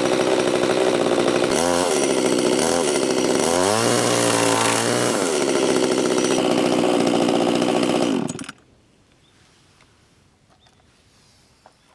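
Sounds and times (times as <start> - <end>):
chainsaw engine running: 0.0 - 8.6.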